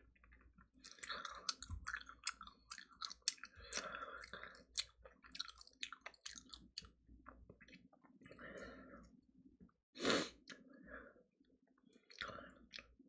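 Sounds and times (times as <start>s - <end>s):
chewing crispy fried chicken: 0.2s - 8.4s.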